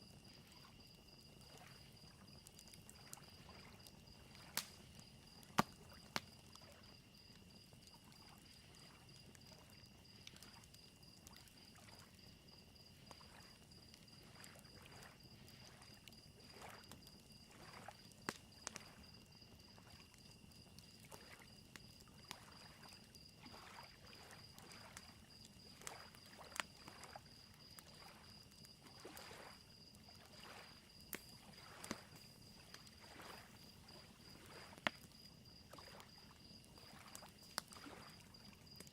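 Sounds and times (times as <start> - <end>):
campfire crackling: 0.0 - 38.9
cricket trill: 0.0 - 38.9
lake waves lapping: 17.5 - 18.0, 22.3 - 25.0, 25.6 - 29.6, 30.3 - 34.8, 35.7 - 38.4.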